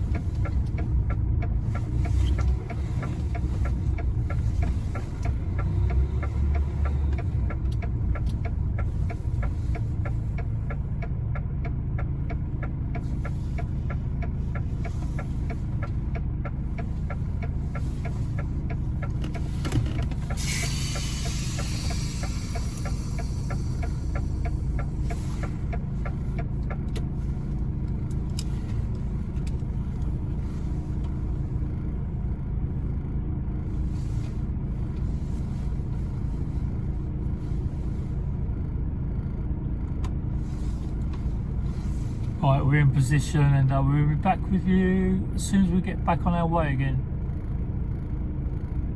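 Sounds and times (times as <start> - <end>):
diesel truck engine idling: 0.0 - 48.9
air hiss: 20.3 - 25.6.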